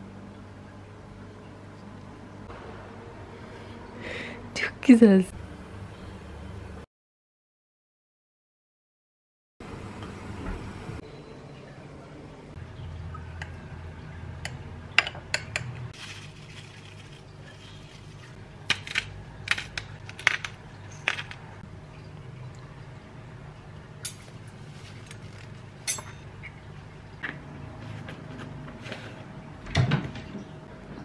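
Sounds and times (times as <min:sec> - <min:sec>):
dishes and cutlery clinking: 0:24.0 - 0:26.6.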